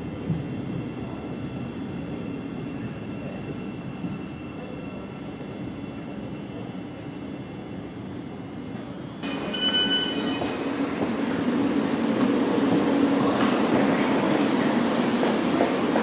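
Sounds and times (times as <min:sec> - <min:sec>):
electric train rumbling: 0:00.0 - 0:16.0
train wheels squealing on rail: 0:02.0 - 0:11.2.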